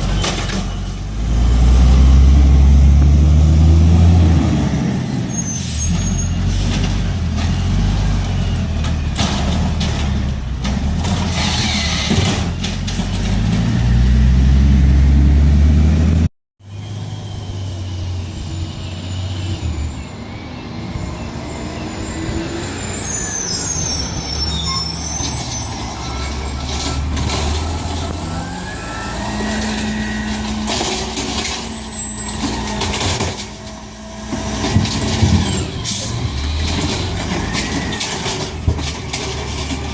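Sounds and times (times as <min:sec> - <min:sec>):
brief high squeals: 0:05.0 - 0:06.4, 0:21.4 - 0:30.7, 0:31.5 - 0:32.9.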